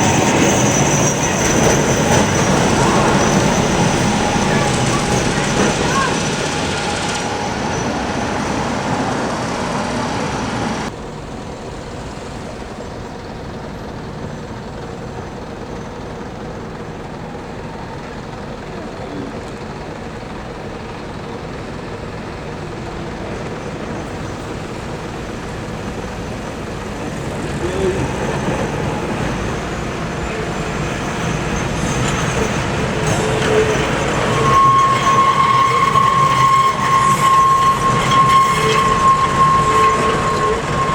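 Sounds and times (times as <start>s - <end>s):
vehicle traffic noise: 0.0s - 40.9s.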